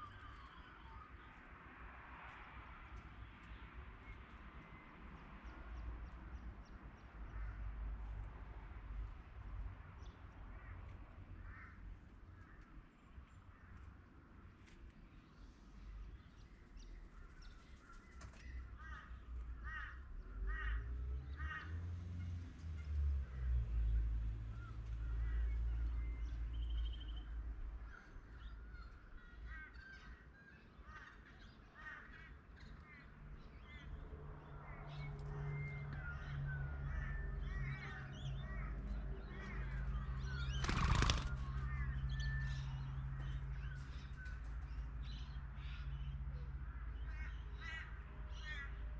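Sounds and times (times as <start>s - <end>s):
wild birds calling: 35.6s - 46.1s.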